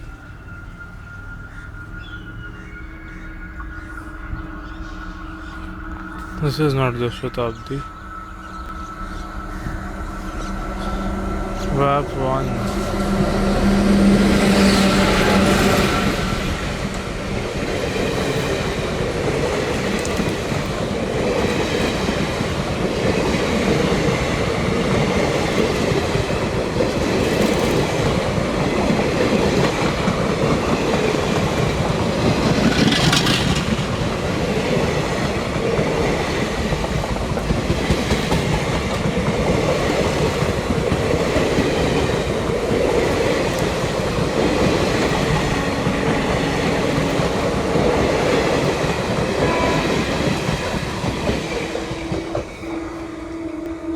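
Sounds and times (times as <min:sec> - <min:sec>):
train wheel screech: 0:00.0 - 0:53.9
train wheels clattering: 0:03.1 - 0:53.9.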